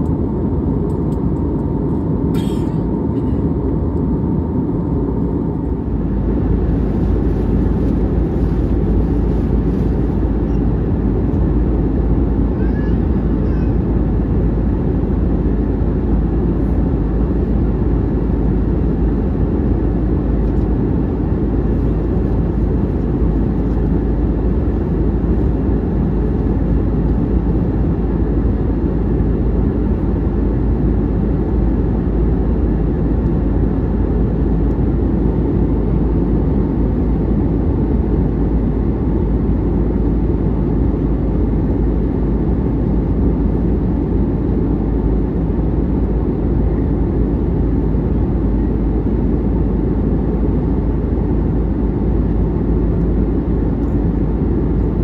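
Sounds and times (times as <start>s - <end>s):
jet engines roaring in cabin: 0.0s - 55.0s.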